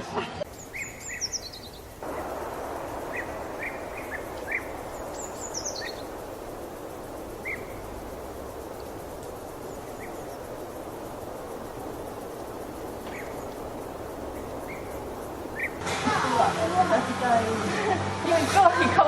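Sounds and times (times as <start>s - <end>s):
birds chirping: 0.4s - 15.8s
steady background hiss: 0.4s - 19.0s.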